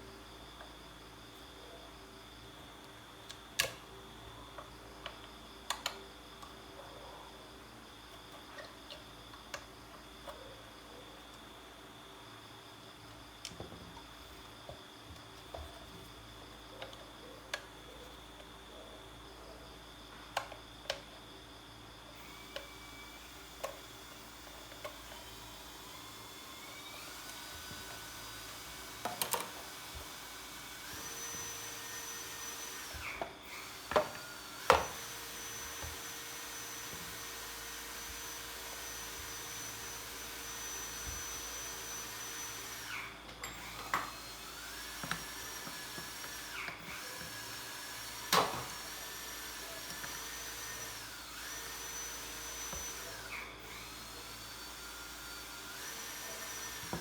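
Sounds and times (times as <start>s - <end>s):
small electric motor whining: 22.1s - 57.0s.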